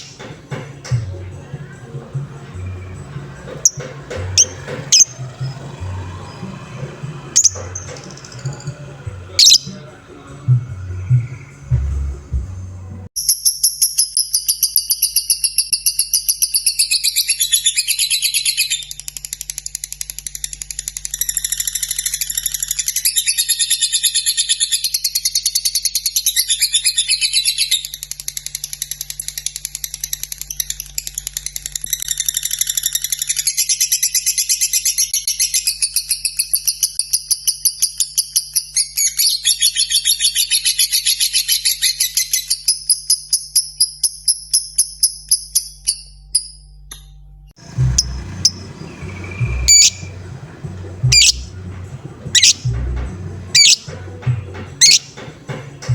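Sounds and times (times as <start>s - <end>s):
bird chattering trill: 3.6s - 6.5s, 7.4s - 9.9s, 47.6s - 54.0s, 54.8s - 55.2s.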